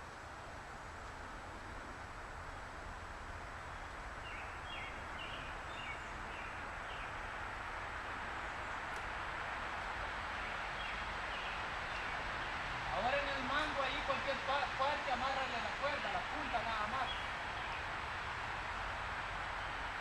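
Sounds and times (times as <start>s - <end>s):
outdoor background noise: 0.0s - 20.0s
bird chirping: 10.4s - 12.2s.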